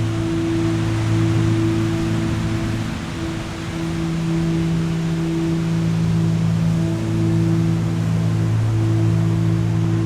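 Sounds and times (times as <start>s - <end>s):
ambient meditation drone music: 0.0s - 10.0s.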